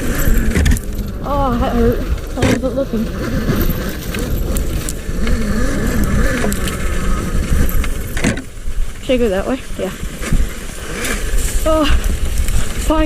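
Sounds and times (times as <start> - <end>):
dirt bike rumble and rattle: 0.0 - 13.0
sharp clicks and knocks: 0.1 - 1.3, 7.5 - 8.5.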